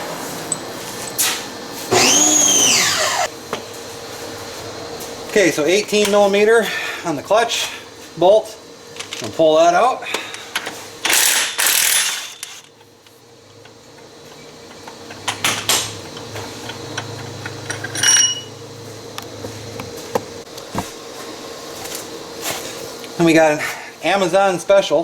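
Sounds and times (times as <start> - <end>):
tool clanking on metal: 14.4 - 18.5.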